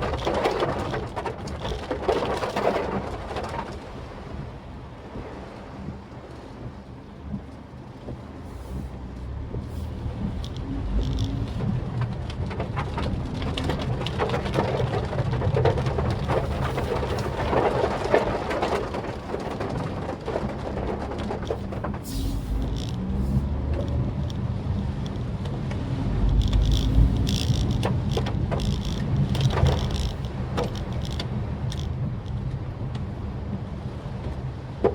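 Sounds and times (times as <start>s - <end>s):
rain pattering: 0.0s - 34.9s
tyres on wet road: 0.0s - 34.9s
car engine hum: 7.0s - 34.9s.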